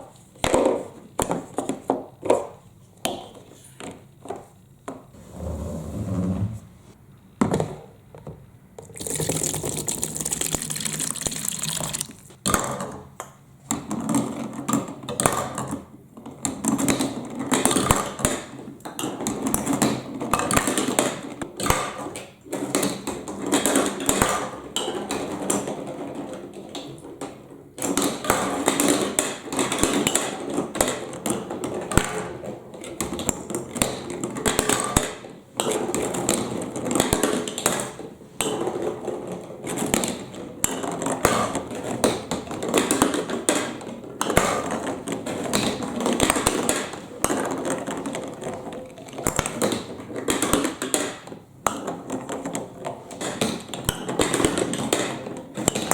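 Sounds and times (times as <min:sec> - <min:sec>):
water splashing down marble run: 0:08.9 - 0:12.4
glass marbles clicking: 0:09.0 - 0:12.3.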